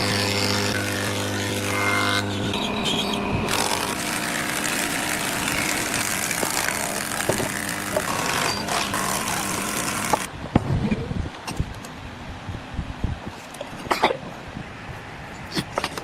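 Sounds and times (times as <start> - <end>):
motor humming: 0.0 - 10.3.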